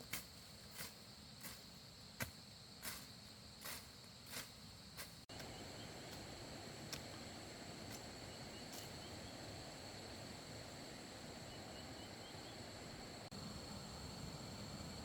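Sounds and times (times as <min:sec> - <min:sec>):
insects droning trill: 0:00.0 - 0:15.0
low background hiss: 0:04.6 - 0:15.0
faint bird chirps: 0:05.3 - 0:06.2, 0:08.2 - 0:09.5, 0:11.4 - 0:12.7.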